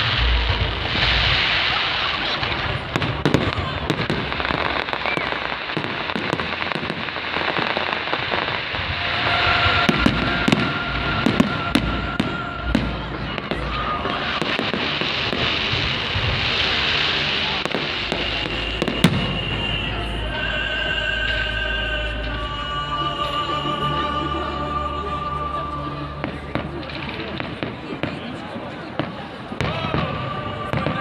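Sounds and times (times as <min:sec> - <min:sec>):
fireworks bangs and crackling: 0:00.0 - 0:23.8, 0:25.6 - 0:31.0
voices in background: 0:00.0 - 0:31.0
music from loudspeakers: 0:05.5 - 0:27.9.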